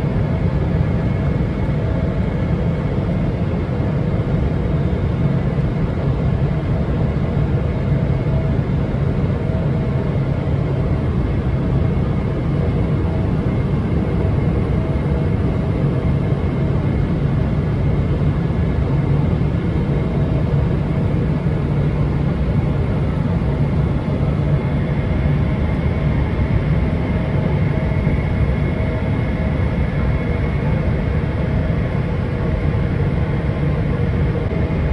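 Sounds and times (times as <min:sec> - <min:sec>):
airplane cabin rumble: 0:07.6 - 0:34.9.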